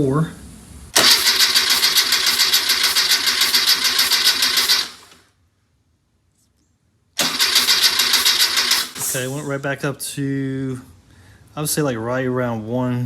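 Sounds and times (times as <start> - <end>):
starter cranking engine: 1.0 - 5.2, 7.2 - 9.5.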